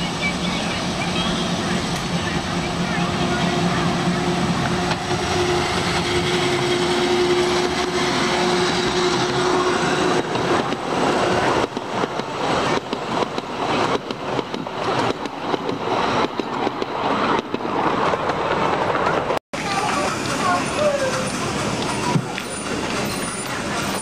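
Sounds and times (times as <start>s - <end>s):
wheels clattering over rail joints: 10.2s - 24.0s
miniature train humming: 19.1s - 24.0s.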